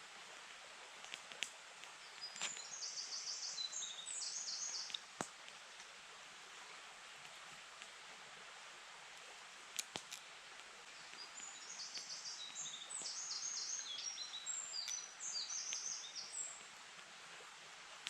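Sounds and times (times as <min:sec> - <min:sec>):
songbird chirping: 0:01.9 - 0:05.2, 0:10.8 - 0:16.7.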